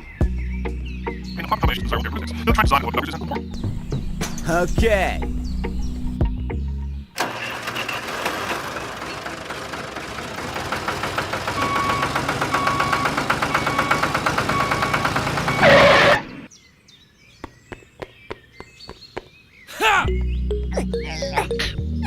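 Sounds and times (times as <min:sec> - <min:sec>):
motor running with rapid knocking: 0:07.2 - 0:15.6.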